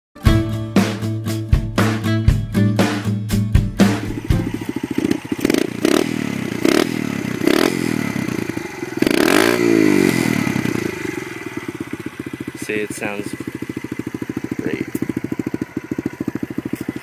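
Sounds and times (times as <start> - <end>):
dirt bike engine revving: 3.8 - 17.0.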